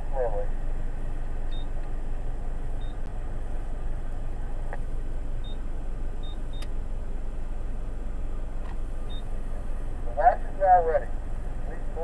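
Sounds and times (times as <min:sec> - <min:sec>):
car engine idling: 0:00.0 - 0:12.0
faint high beeps: 0:01.5 - 0:01.7, 0:06.2 - 0:06.7, 0:09.1 - 0:09.3.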